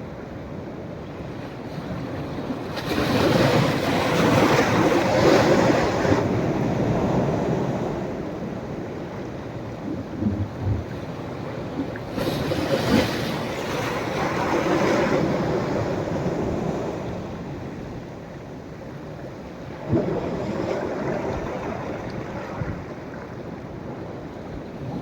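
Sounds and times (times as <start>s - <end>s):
sea waves breaking on beach: 1.8s - 18.1s, 19.4s - 25.0s.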